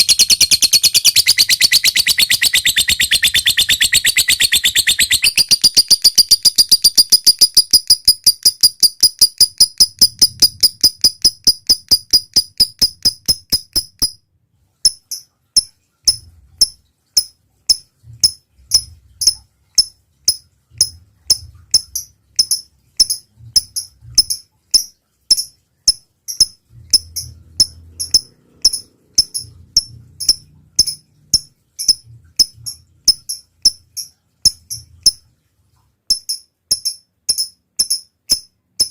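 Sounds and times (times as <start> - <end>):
lovebird chip calls: 0.0 - 14.1.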